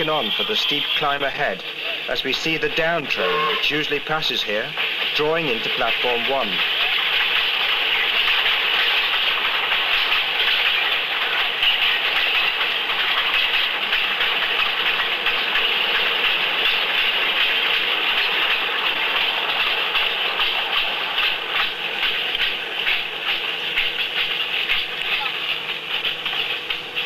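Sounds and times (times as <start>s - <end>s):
train carriages rattling past: 0.0s - 27.0s.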